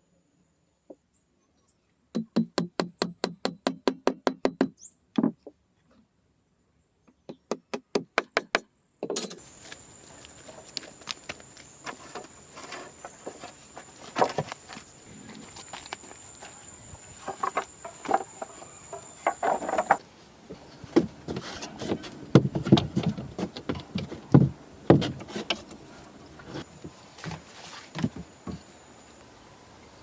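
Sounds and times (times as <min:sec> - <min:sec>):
insect drone: 0:09.2 - 0:20.0
small knocks: 0:17.2 - 0:25.8.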